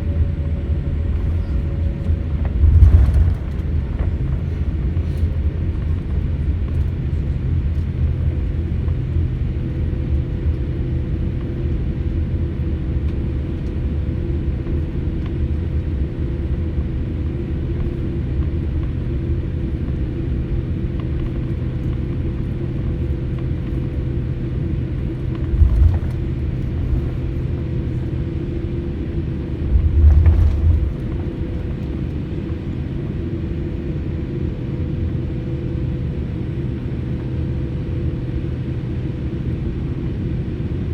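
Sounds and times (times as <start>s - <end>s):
airliner cabin engine rumble: 0.0s - 40.9s
low thumps: 2.2s - 5.6s, 25.3s - 27.6s, 29.6s - 31.7s.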